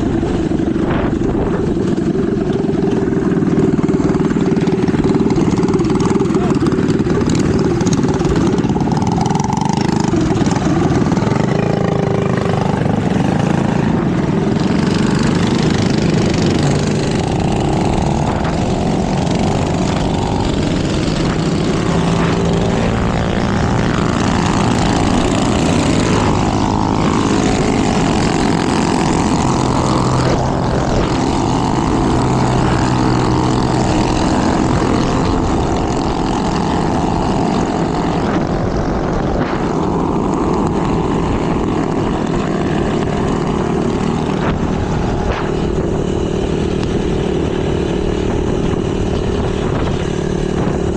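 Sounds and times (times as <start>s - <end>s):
minibike engines revving: 0.0s - 50.9s.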